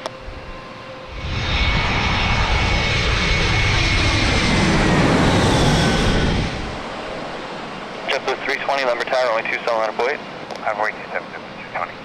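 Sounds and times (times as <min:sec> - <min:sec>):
jet airliner engines roaring: 0:00.0 - 0:12.0.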